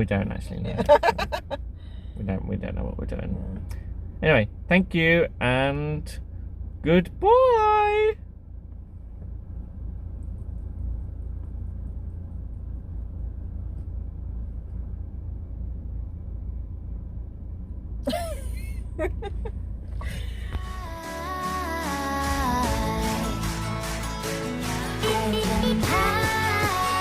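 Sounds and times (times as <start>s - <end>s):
low outdoor rumble: 0.0s - 27.0s
outro music: 20.6s - 27.0s.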